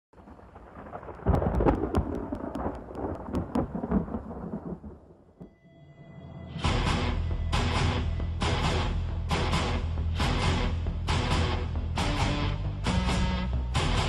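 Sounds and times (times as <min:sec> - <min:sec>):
deep thunder rumble: 0:00.2 - 0:05.6
thunderclap crackling: 0:00.2 - 0:05.6.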